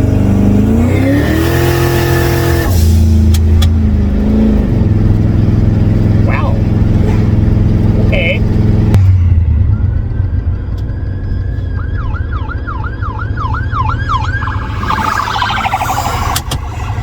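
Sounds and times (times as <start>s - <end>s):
car engine and road rumble: 0.0s - 17.0s
police siren wailing: 9.4s - 17.0s.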